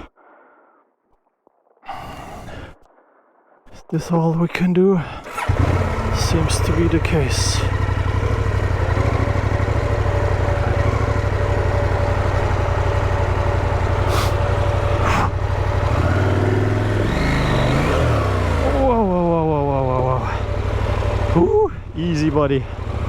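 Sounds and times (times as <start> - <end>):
motorcycle engine running: 5.3 - 23.0.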